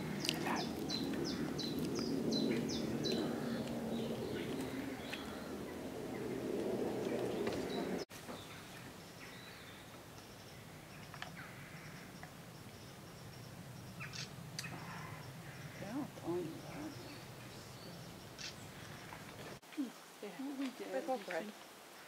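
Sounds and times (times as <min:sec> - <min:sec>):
low background rumble: 0:00.0 - 0:08.1
songbirds chirping: 0:00.0 - 0:22.0.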